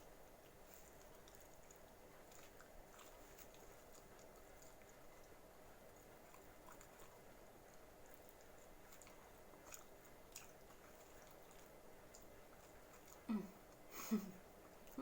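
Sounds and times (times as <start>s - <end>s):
wet chewing mouth clicks: 0.3s - 15.0s.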